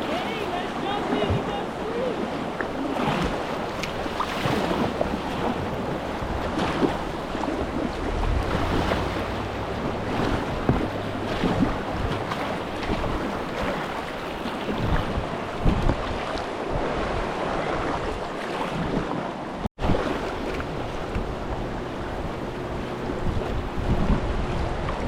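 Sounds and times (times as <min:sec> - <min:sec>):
river water rushing and splashing: 0:00.0 - 0:25.0
wind buffeting microphone: 0:00.0 - 0:25.0
low rumble: 0:05.8 - 0:12.9.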